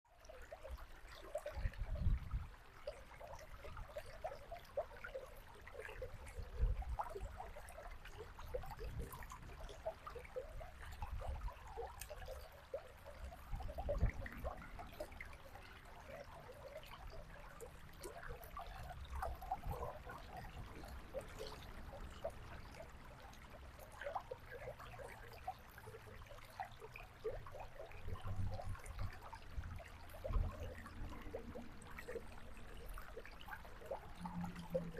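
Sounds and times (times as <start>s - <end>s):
river babbling over stones: 0.2s - 34.9s.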